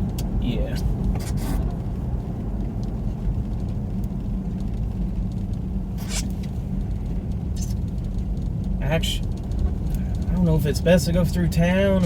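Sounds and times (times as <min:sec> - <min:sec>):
car engine rumble: 0:00.0 - 0:12.0
tyres on snowy road: 0:00.0 - 0:12.0.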